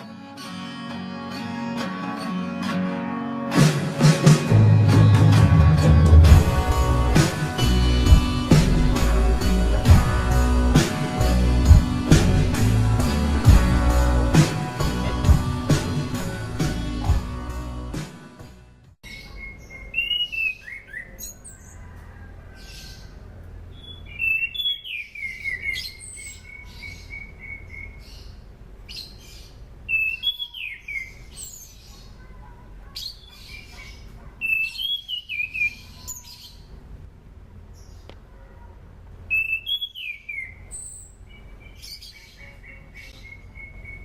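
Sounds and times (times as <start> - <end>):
intro music: 0.0 - 19.0
thrush singing whistles and trills: 29.9 - 31.7, 39.3 - 44.0.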